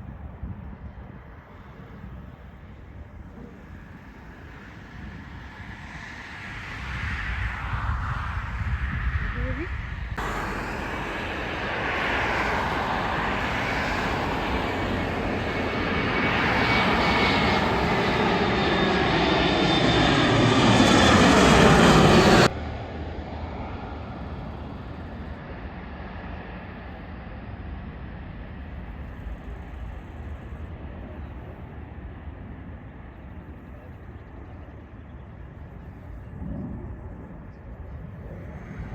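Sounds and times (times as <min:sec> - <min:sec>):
steady rumble: 0:00.0 - 0:22.6, 0:35.2 - 0:38.9
airliner engines with falling whine: 0:00.0 - 0:38.9.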